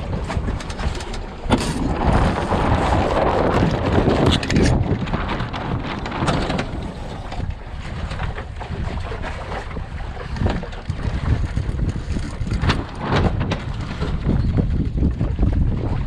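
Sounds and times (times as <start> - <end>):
water rushing: 0.0 - 11.8
wind buffeting microphone: 0.0 - 16.0.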